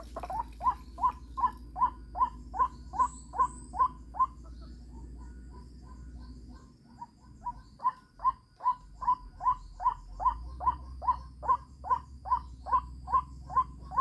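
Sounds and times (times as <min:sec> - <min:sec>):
high insect-like tones: 0:00.0 - 0:04.1
bird calling repeatedly: 0:00.0 - 0:14.0.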